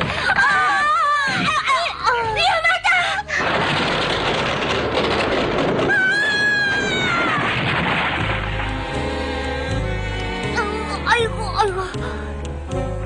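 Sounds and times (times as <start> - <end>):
background music with low note: 8.0 - 13.0.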